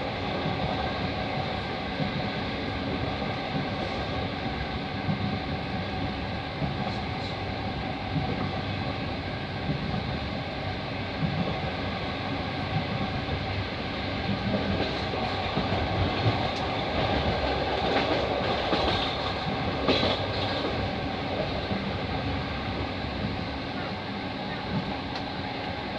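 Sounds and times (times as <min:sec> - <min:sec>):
train wheels rumbling: 0:00.0 - 0:25.9.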